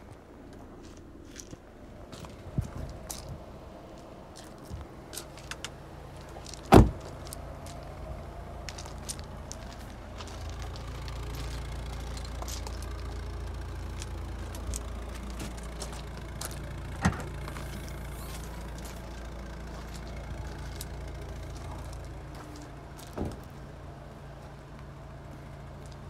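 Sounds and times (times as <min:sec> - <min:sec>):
car engine idling: 0:00.1 - 0:26.0
thump: 0:06.7 - 0:07.1, 0:23.2 - 0:23.4.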